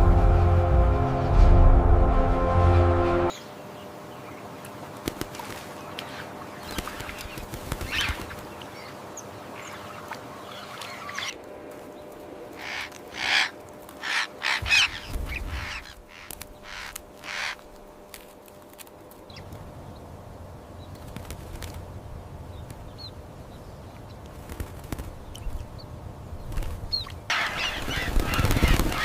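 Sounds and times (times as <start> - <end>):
steady low rumble: 0.0 - 3.3
parrots squawking: 12.6 - 17.6, 27.3 - 29.0.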